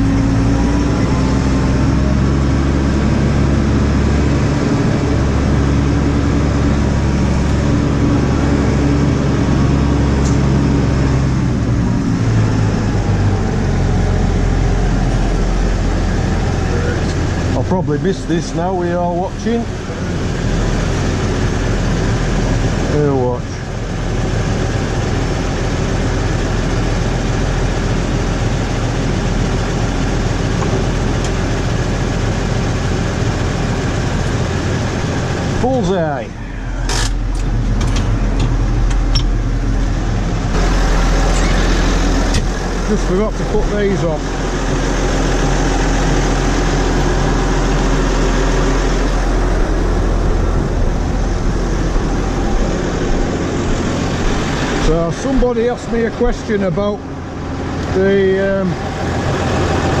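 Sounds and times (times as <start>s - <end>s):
tractor engine running: 0.0s - 60.0s.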